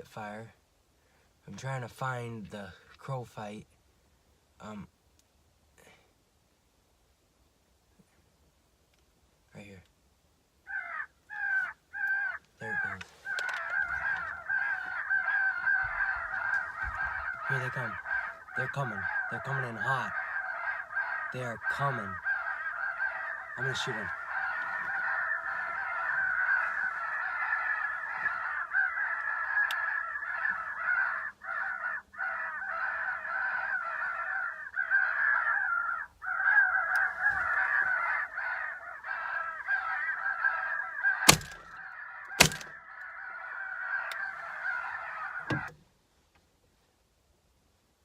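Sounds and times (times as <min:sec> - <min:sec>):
crows cawing: 0:10.6 - 0:45.8.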